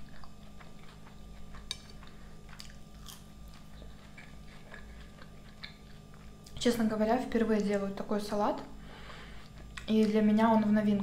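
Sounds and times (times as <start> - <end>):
person chewing salad: 0.0 - 6.6, 9.1 - 10.1
faint steady hum: 0.0 - 11.0.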